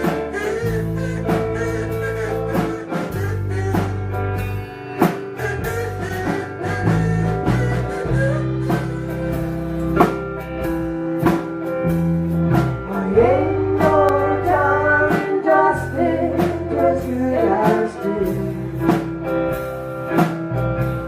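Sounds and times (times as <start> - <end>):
live rock band instrumental: 0.0 - 21.0.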